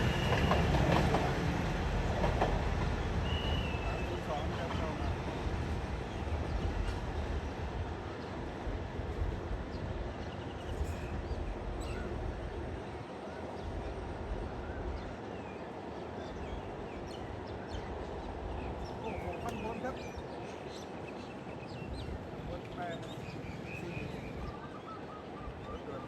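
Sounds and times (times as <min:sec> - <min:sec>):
train rumbling on tracks: 0:00.0 - 0:25.6
birds chirping: 0:09.7 - 0:26.0.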